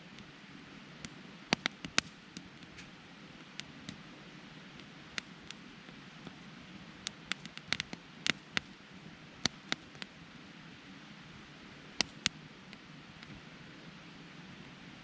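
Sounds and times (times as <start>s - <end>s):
faint background noise: 0.0s - 15.0s
campfire crackling and popping: 0.1s - 10.2s, 11.8s - 13.5s.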